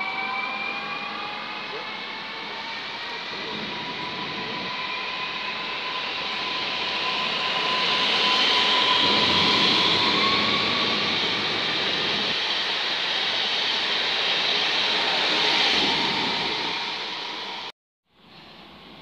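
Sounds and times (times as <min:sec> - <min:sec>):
traction motor whine: 0:00.0 - 0:12.7
train rolling and rushing: 0:00.0 - 0:17.7.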